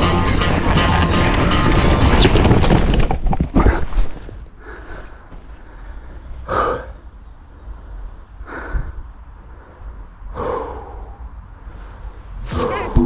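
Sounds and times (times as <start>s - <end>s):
low steady rumble: 4.3s - 13.0s
person breathing hard: 4.6s - 13.0s.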